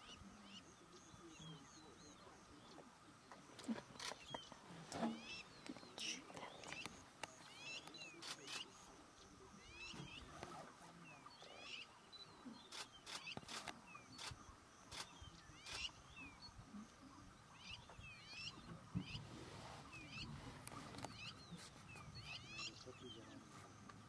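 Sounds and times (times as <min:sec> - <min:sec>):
camera shutter clicks: 0:12.7 - 0:15.9.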